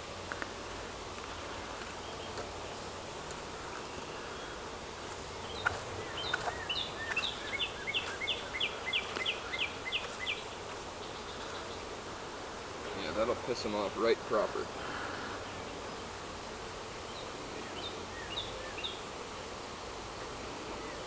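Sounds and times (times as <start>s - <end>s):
honeybees buzzing: 0.0s - 21.0s
outdoor hiss: 0.0s - 21.0s
songbird singing descending notes: 5.4s - 11.9s.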